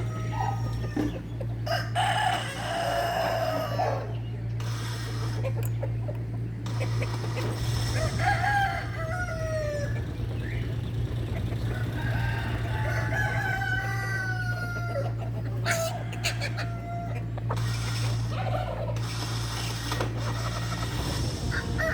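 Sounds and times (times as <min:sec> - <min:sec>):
rooster crowing: 0:00.0 - 0:04.1, 0:07.8 - 0:10.2, 0:11.6 - 0:17.3, 0:20.9 - 0:21.9
steady low hum: 0:00.0 - 0:21.9.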